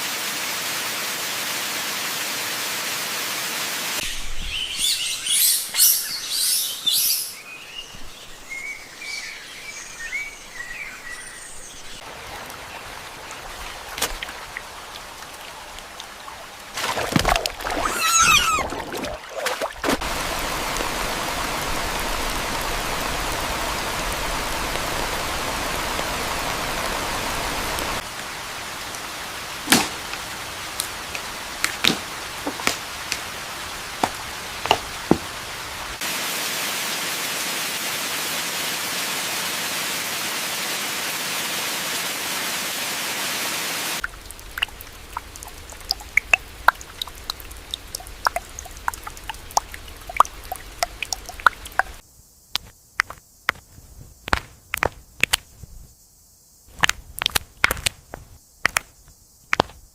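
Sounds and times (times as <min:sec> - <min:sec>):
water drips and ticks: 0:12.0 - 0:17.9, 0:30.0 - 0:35.3, 0:44.0 - 0:53.6, 0:56.8 - 0:58.0
heavy rain hissing: 0:20.0 - 0:45.9.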